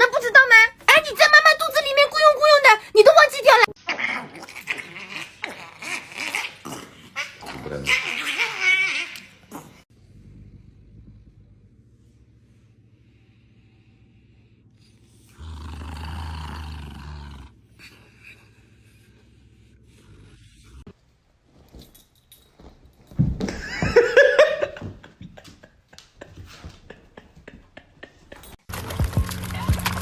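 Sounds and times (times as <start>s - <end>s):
dog crying: 3.6s - 6.6s, 7.2s - 9.8s.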